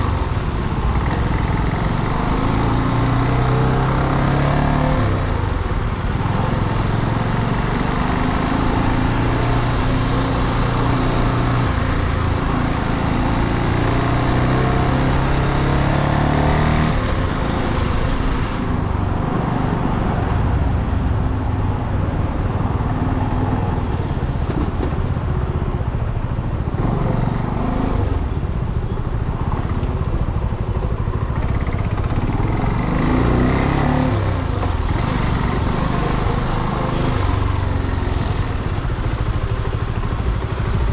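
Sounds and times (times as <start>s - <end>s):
motorcycle engine running: 29.6s - 40.9s.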